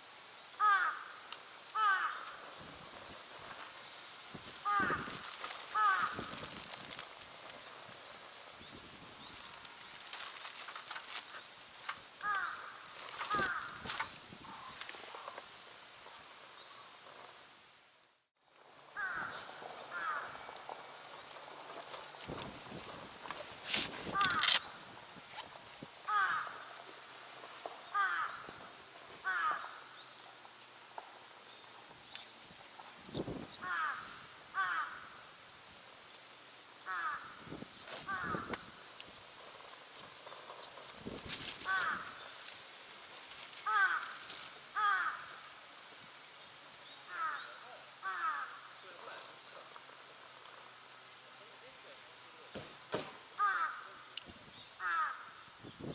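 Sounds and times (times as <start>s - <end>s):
crow cawing: 0.6s - 2.4s, 4.6s - 6.8s, 12.2s - 14.8s, 18.9s - 20.6s, 24.1s - 24.6s, 26.1s - 26.8s, 27.9s - 28.6s, 29.2s - 29.9s, 33.6s - 35.4s, 36.8s - 37.4s, 38.0s - 38.6s, 41.6s - 42.3s, 43.6s - 45.5s, 47.1s - 48.8s, 53.4s - 54.1s, 54.8s - 55.4s
dull thump: 52.5s - 53.2s.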